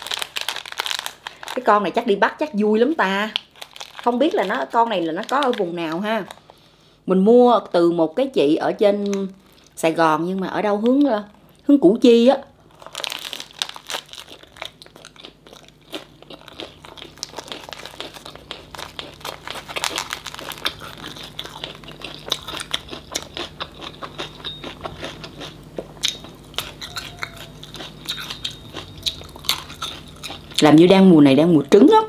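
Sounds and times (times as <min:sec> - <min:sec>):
wet crunching while chewing: 0:00.0 - 0:01.7, 0:03.0 - 0:06.5, 0:12.6 - 0:30.8.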